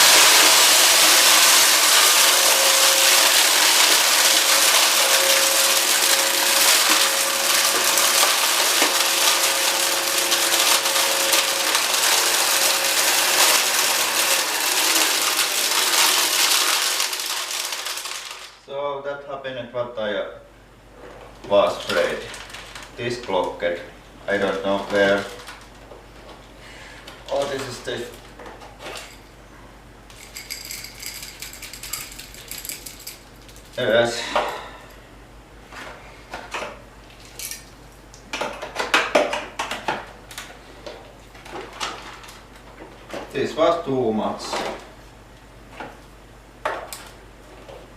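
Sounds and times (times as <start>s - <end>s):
debris rattling through nozzle: 0.0s - 18.6s
vacuum cleaner motor whining: 0.0s - 18.6s.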